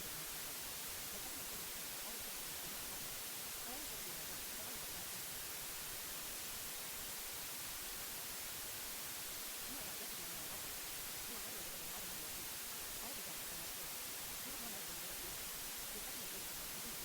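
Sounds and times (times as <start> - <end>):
white noise hiss: 0.0 - 17.0
faint voice: 9.6 - 17.0.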